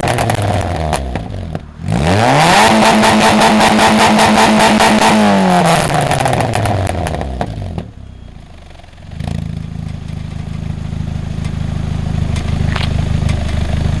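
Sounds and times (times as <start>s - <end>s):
exhaust pops: 0.0s - 2.0s, 2.6s - 8.0s, 9.1s - 14.0s
car engine revs falling: 0.0s - 8.0s
exhaust low idle: 7.7s - 14.0s.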